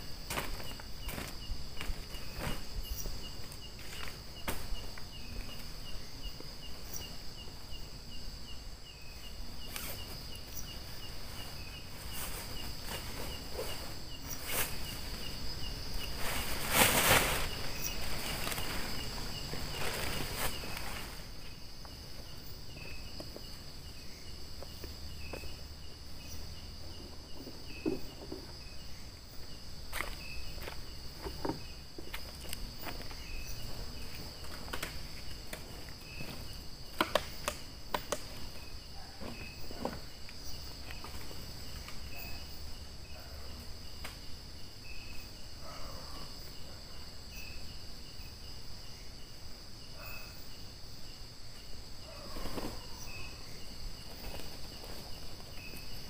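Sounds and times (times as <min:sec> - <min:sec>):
rustles and footstep crunches: 0:00.0 - 0:05.8, 0:09.7 - 0:25.6, 0:29.2 - 0:38.6
crickets shrilling: 0:00.0 - 0:56.0
insect chirping: 0:00.0 - 0:56.0.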